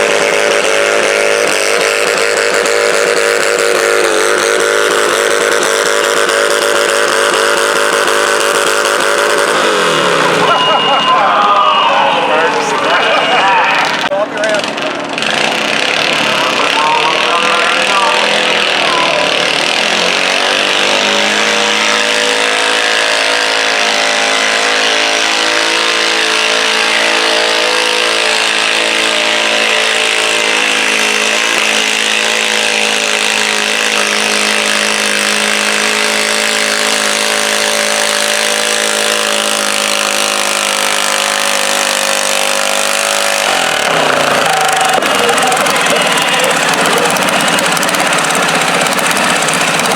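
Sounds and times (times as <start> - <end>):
tractor engine at full throttle: 0.0 - 49.9.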